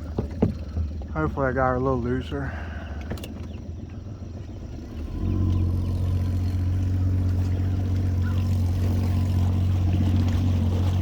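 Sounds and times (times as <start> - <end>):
boat motor droning: 0.0 - 11.0.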